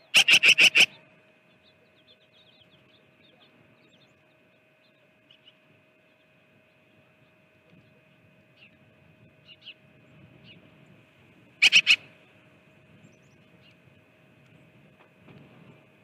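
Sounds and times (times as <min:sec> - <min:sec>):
bird chirping: 0:11.6 - 0:12.0.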